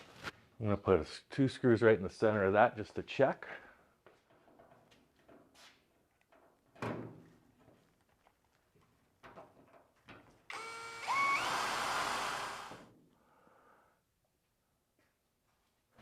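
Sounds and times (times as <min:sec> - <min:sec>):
power drill motor whine: 0:10.5 - 0:12.9.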